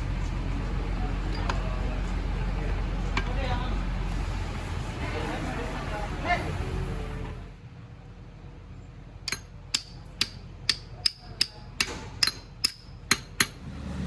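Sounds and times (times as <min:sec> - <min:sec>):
hammer striking metal: 0:09.3 - 0:13.6.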